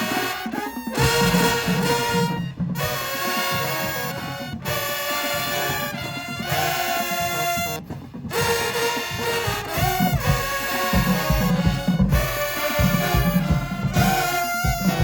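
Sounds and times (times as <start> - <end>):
brass band holding chords: 0.0 - 15.0
bass drum beat: 0.9 - 4.9, 8.3 - 15.0.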